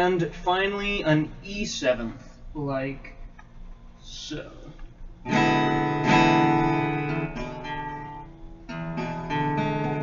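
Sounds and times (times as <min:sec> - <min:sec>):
guitar strumming a chord: 0:05.2 - 0:10.0.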